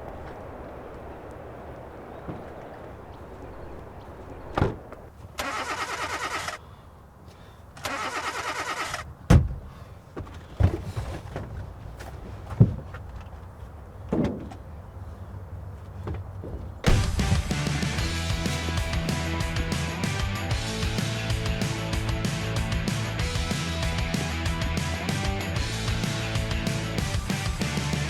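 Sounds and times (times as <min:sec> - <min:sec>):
car starter cranking: 0:05.4 - 0:06.6, 0:07.8 - 0:09.7
sharp thumps: 0:09.3 - 0:11.6, 0:16.0 - 0:19.0.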